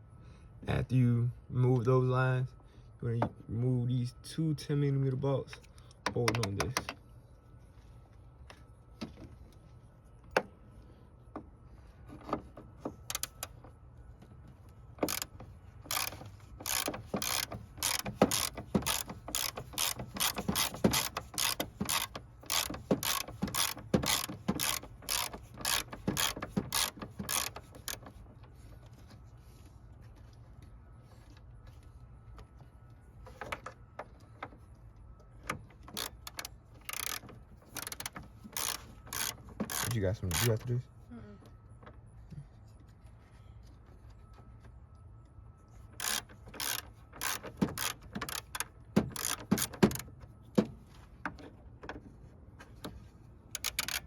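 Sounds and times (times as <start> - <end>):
ratchet wrench clicking: 15.0 - 15.3, 15.9 - 28.0, 36.0 - 40.5, 46.0 - 50.0, 53.6 - 54.0.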